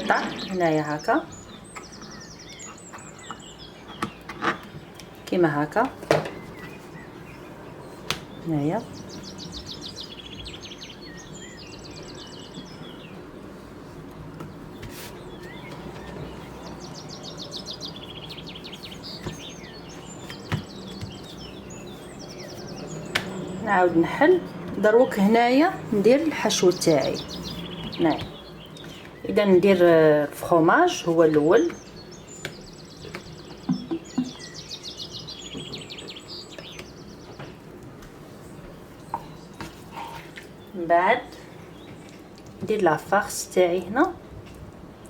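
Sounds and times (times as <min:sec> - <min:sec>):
songbird chirping: 0:00.0 - 0:45.0
songbird trilling: 0:08.3 - 0:13.1, 0:15.3 - 0:24.3, 0:31.4 - 0:37.4.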